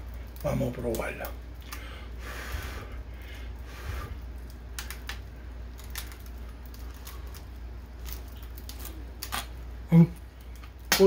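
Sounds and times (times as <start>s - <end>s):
crunching while chewing: 4.0s - 10.8s.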